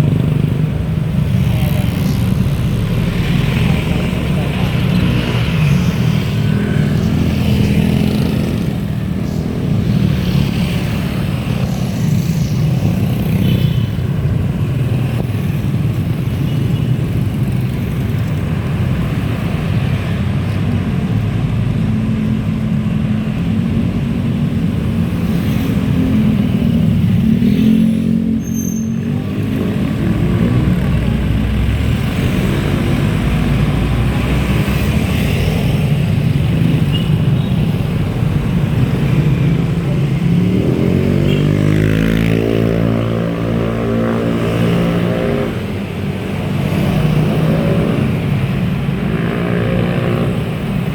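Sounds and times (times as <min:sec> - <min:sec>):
vehicle and road rumble: 0:00.0 - 0:50.9.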